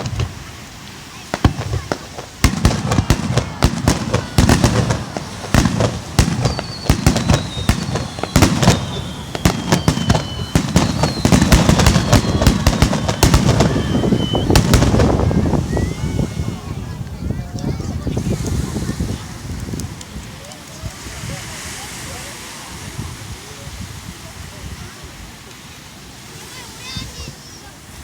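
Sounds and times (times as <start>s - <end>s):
firework shells bursting: 0.0s - 16.3s
crackling rumble: 0.0s - 20.3s
high falling whistle: 2.9s - 16.4s.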